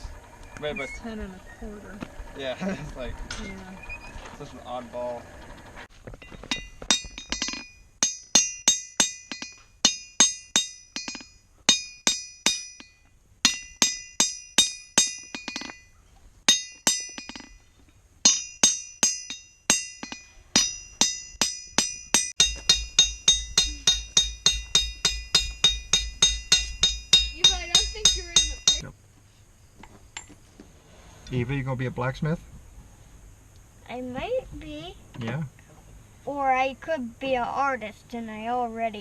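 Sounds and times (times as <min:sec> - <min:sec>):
hammer striking steel on anvil: 0:06.5 - 0:15.9, 0:16.5 - 0:17.6, 0:18.2 - 0:28.8.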